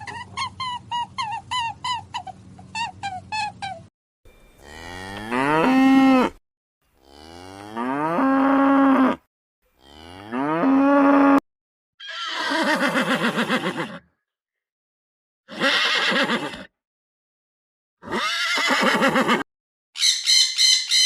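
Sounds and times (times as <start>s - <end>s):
cow mooing: 4.6s - 6.4s, 7.0s - 11.4s
horse whinnying: 12.0s - 14.1s, 15.5s - 16.7s, 18.0s - 19.4s.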